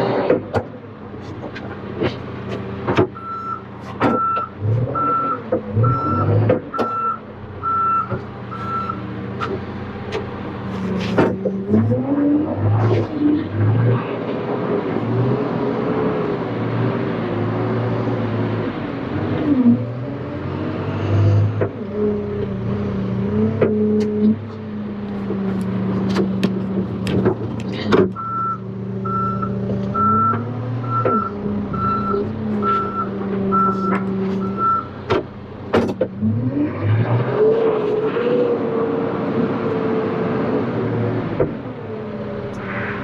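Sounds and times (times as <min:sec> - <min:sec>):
backhoe diesel engine running: 0:00.0 - 0:12.1, 0:18.2 - 0:36.5
backup alarm beeping: 0:03.2 - 0:09.0, 0:28.2 - 0:34.9
sharp clanks and clicks: 0:23.6 - 0:28.3, 0:33.8 - 0:36.2.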